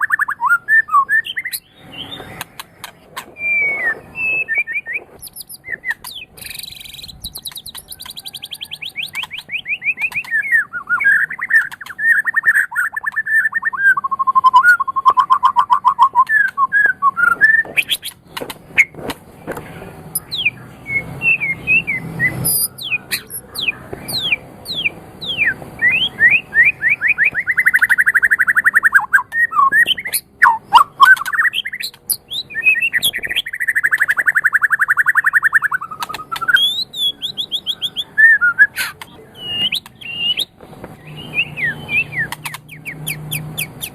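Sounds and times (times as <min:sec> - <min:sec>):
songbird singing varied song: 0:00.0 - 0:19.4, 0:20.1 - 0:43.9
bird sharp clicks: 0:02.1 - 0:04.6, 0:05.2 - 0:10.5, 0:11.4 - 0:13.4, 0:27.1 - 0:32.1, 0:33.1 - 0:36.8, 0:41.6 - 0:43.9.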